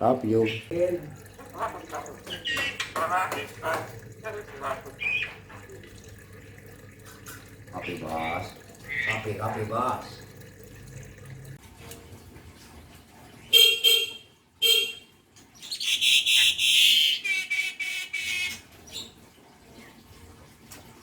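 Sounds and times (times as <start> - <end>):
myna calling: 0.4 - 5.8, 7.7 - 9.6
harsh rasping bird call: 15.7 - 18.7.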